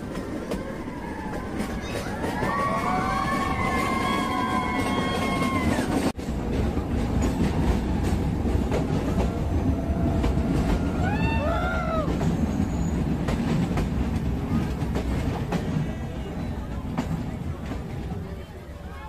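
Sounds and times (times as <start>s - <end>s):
train wheels clicking: 0.0s - 18.3s
train rumbling along track: 0.0s - 19.0s
wheel squeal: 12.1s - 13.2s.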